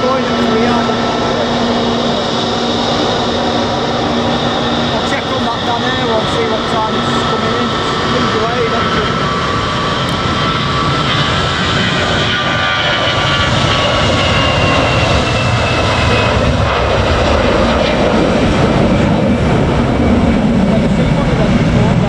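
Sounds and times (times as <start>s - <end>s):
jet airliner taking off: 0.0s - 22.0s
jet engine whine: 0.0s - 22.0s.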